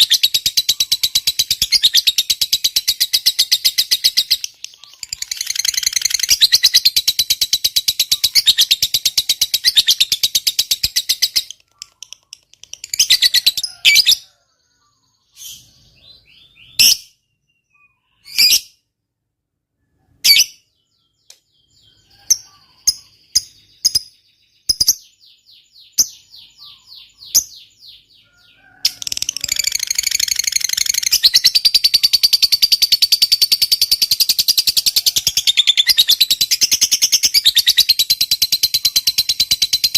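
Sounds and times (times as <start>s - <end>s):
lovebird chattering trill: 0.0s - 14.3s, 28.9s - 39.9s.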